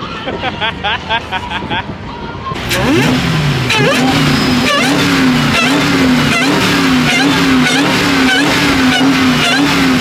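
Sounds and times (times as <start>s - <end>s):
car engine revving hard: 2.6s - 10.0s.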